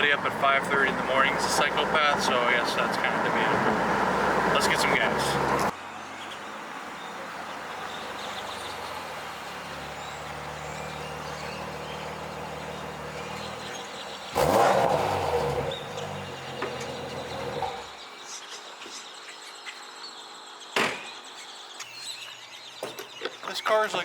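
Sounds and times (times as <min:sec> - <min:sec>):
car engine revving: 0:00.0 - 0:05.7, 0:07.5 - 0:18.0
steady outdoor hiss: 0:00.0 - 0:22.8.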